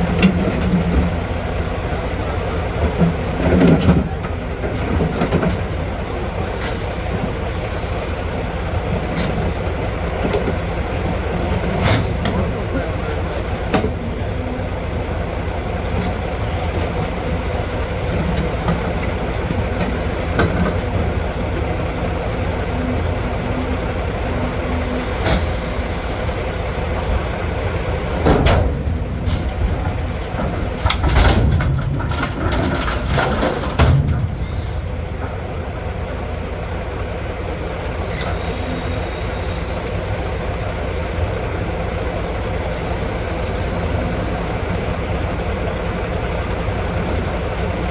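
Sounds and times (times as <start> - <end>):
heavy diesel engine running: 0.0 - 47.9
loud metal clanks and scrapes: 28.2 - 34.9.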